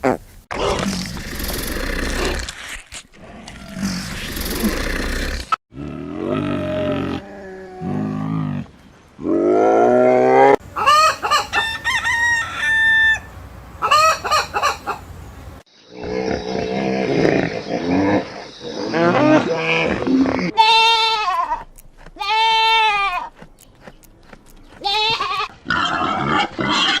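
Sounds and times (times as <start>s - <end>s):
hens clucking: 10.6s - 12.7s, 13.8s - 15.2s
rooster crowing: 10.8s - 14.7s.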